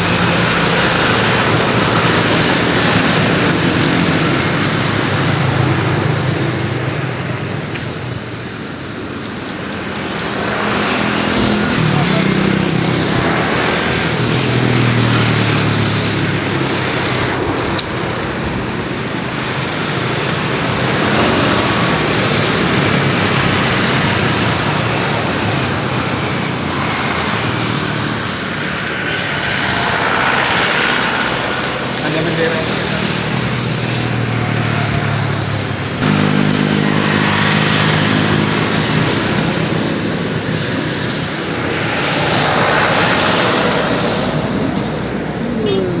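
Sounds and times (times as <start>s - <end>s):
jet engines roaring: 0.0s - 46.0s
low drone: 27.1s - 34.7s.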